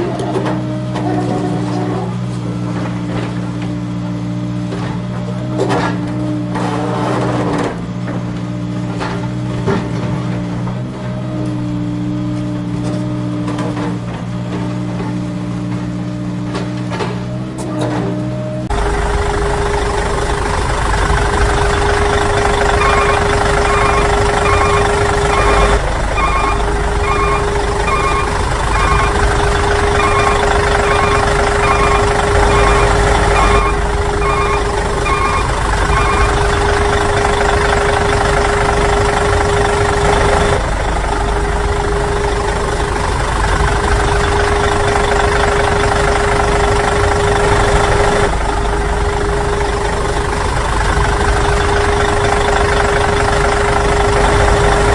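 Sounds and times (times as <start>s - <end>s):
simulated truck engine: 0.0s - 54.9s
reversing beeper: 22.0s - 37.2s.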